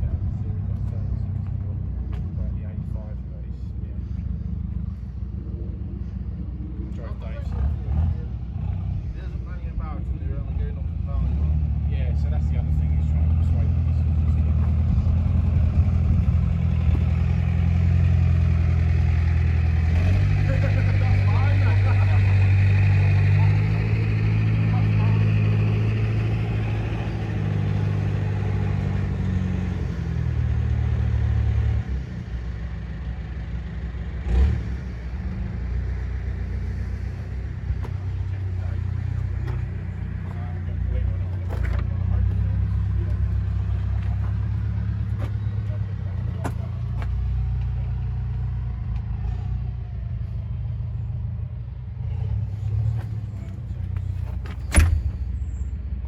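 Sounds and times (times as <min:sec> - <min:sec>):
engine humming: 0:00.0 - 0:56.0
thump: 0:54.3 - 0:55.4.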